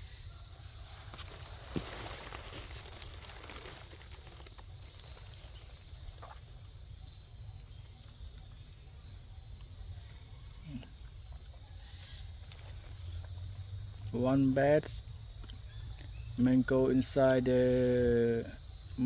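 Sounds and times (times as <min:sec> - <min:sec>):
soft rustling: 0:00.9 - 0:05.9.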